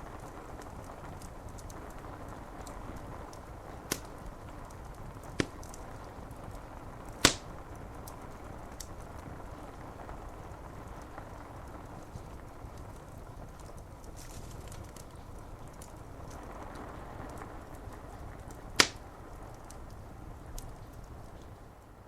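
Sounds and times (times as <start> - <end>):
wood fire crackling: 0.0 - 22.0
sharp fire pops: 3.8 - 6.3, 7.1 - 7.9, 18.8 - 19.3.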